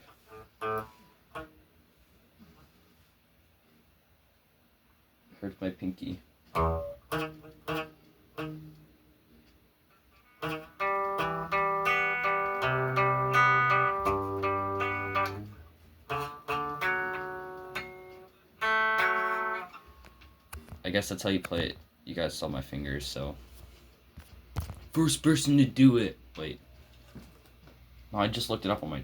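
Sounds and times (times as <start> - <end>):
guitar chords strummed: 0.2 - 1.6, 6.5 - 8.9, 10.2 - 20.4
guitar strings plucked: 6.5 - 8.9, 10.2 - 20.6.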